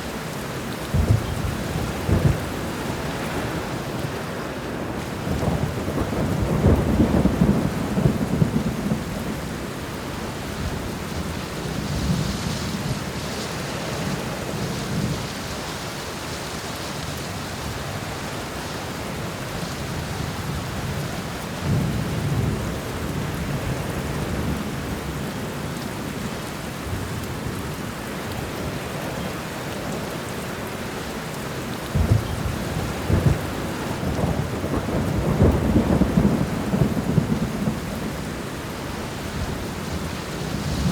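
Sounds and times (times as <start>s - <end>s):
steady rain falling: 0.0s - 40.9s
thunder rumbling: 0.8s - 4.2s, 4.9s - 12.8s, 31.9s - 40.9s.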